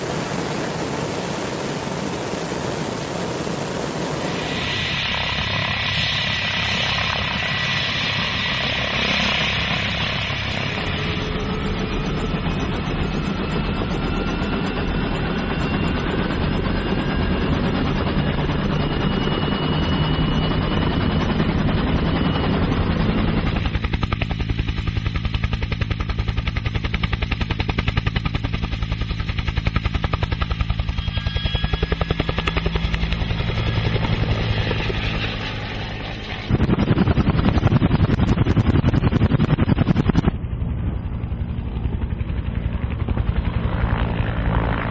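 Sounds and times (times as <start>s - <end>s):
helicopter rotor beating: 0.0s - 44.9s.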